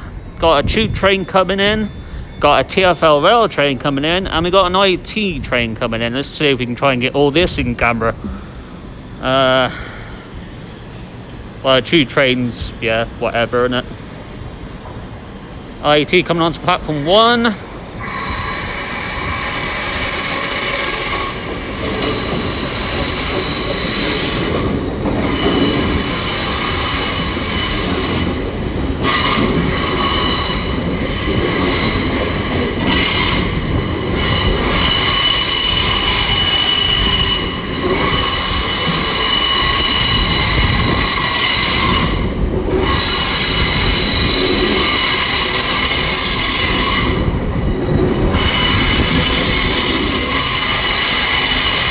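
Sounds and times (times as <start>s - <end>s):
train wheels squealing: 0.0s - 2.9s, 16.9s - 51.9s
low train rumble: 0.0s - 51.9s.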